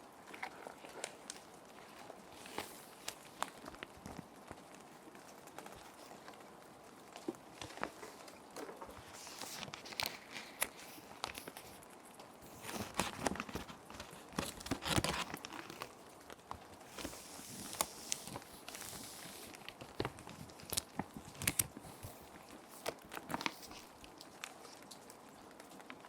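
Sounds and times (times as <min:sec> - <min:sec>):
plastic sheet protectors crinkling: 0:00.0 - 0:06.3, 0:07.4 - 0:25.0
soft rain hiss: 0:00.0 - 0:26.0
paper sliding into plastic sleeve: 0:02.4 - 0:03.8, 0:08.9 - 0:11.8, 0:12.4 - 0:15.9, 0:16.9 - 0:23.9.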